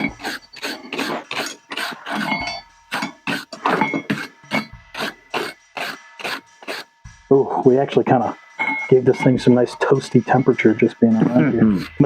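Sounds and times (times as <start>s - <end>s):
hammer striking steel on anvil: 8.4s - 10.7s.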